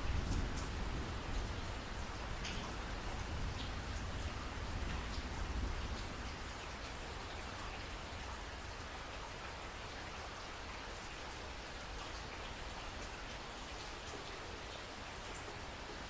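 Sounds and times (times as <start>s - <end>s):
raindrops ticking on surface: 0.0s - 16.0s.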